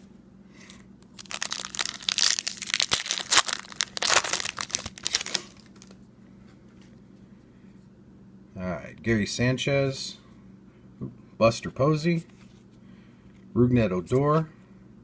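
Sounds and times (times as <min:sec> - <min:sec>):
wrapper tearing and crinkling: 0:01.1 - 0:06.0.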